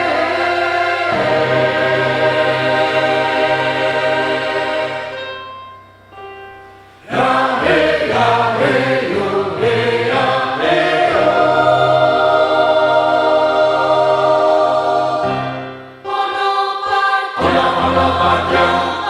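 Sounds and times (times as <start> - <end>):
choir singing: 0.0 - 5.4, 7.0 - 19.0.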